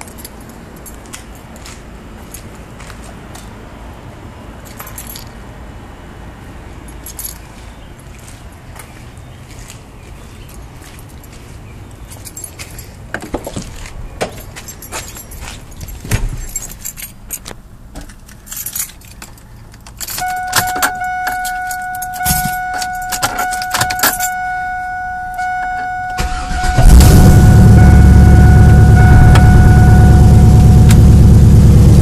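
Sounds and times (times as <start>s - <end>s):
keys jangling: 4.6s - 5.4s, 6.9s - 7.6s, 12.0s - 24.4s
car engine cranking and starting: 18.1s - 32.0s
steady electronic tone: 20.2s - 32.0s.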